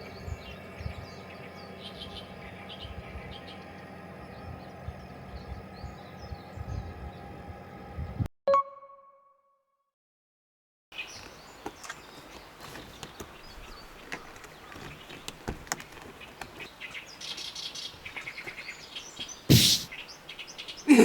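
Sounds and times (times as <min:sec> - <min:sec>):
birds chirping: 0:00.0 - 0:08.2, 0:11.0 - 0:21.0
low outdoor background: 0:00.0 - 0:08.3
loud short thump: 0:19.5 - 0:19.9.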